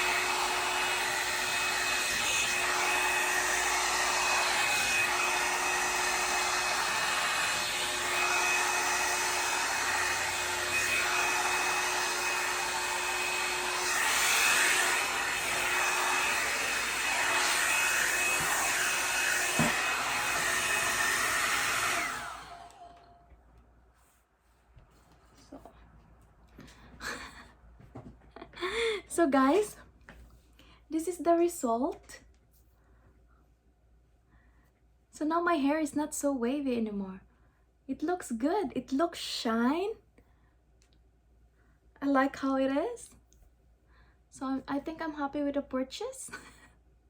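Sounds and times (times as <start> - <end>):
hot-air brush dryer whirring: 0.0 - 23.2, 26.6 - 27.4.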